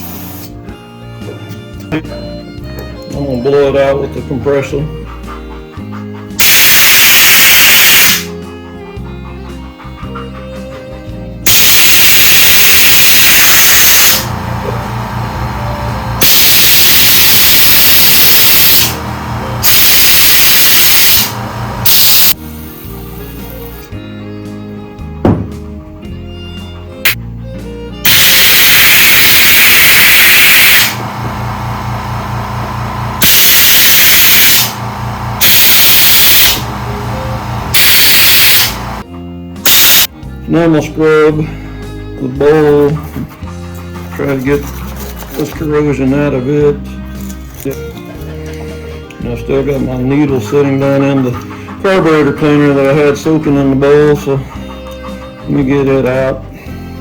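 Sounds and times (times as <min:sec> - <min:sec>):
compressed air blow gun hissing: 0:00.0 - 0:00.6, 0:30.7 - 0:39.0
background music: 0:00.0 - 0:30.9, 0:35.4 - 0:57.0
low pulsing hum: 0:34.7 - 0:35.4, 0:36.6 - 0:37.8.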